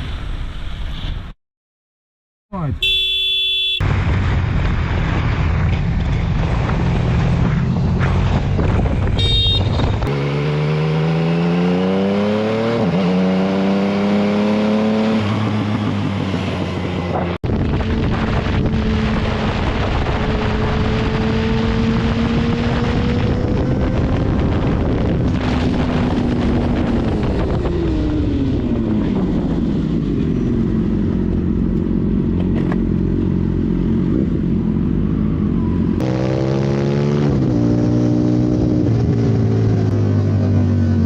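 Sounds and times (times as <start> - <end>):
wind rush: 3.8 - 10.1, 15.2 - 31.3.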